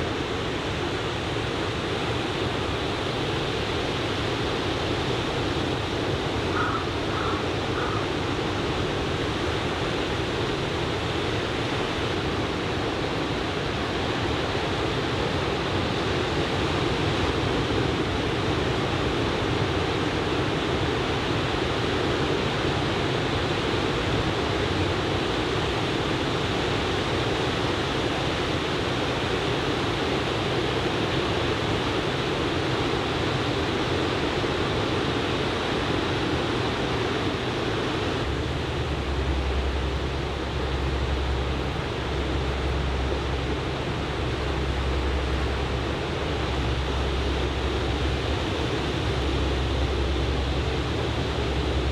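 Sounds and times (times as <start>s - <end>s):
ocean surf washing on a beach: 0.0s - 51.9s.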